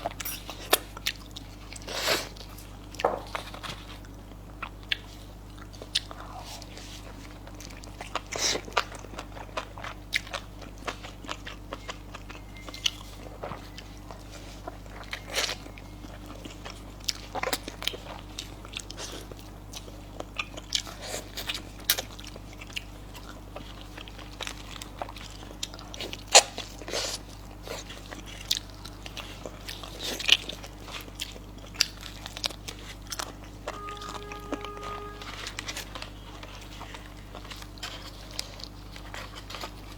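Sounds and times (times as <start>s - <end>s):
chewing with crunchy bites: 0.0s - 33.8s, 35.2s - 39.9s
short pitched tone: 33.6s - 36.0s.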